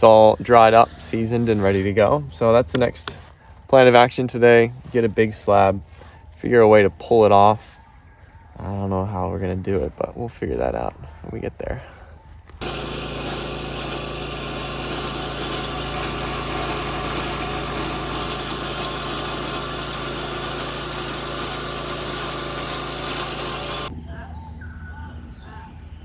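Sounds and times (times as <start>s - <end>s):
sawmill petrol engine running: 12.6s - 23.9s.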